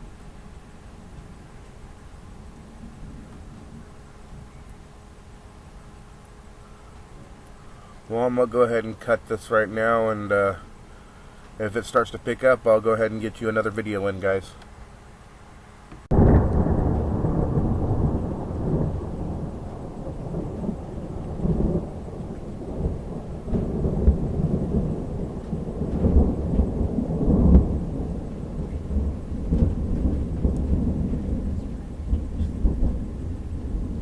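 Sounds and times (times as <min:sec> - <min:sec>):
rain falling: 0:00.0 - 0:34.0
thunder rumbling: 0:02.2 - 0:05.2, 0:16.1 - 0:34.0.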